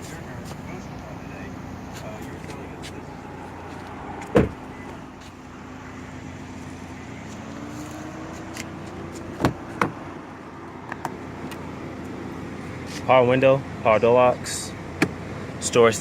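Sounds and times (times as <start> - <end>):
loud thump: 4.2 - 4.6.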